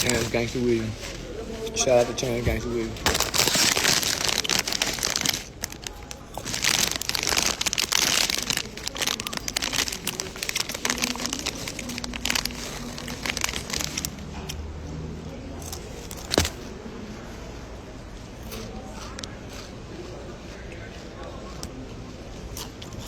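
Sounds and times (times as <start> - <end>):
loud crackling rustling: 0.0 - 1.3, 3.0 - 14.2.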